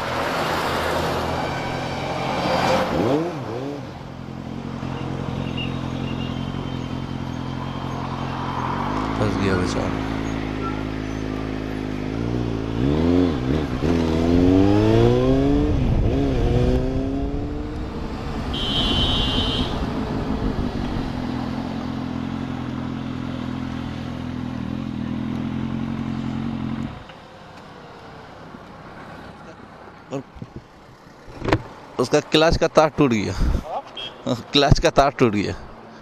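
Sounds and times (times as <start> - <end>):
motorcycle engine idling and revving: 0.0 - 32.0
high-pitched beep: 10.2 - 11.0.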